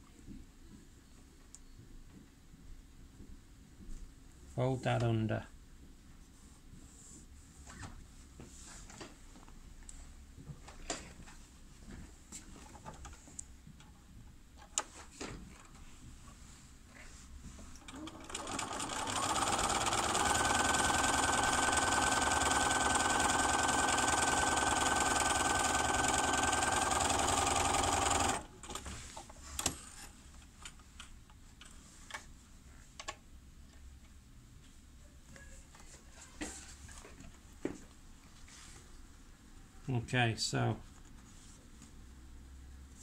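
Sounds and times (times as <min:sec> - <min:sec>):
sewing machine stitching: 0:17.8 - 0:28.9.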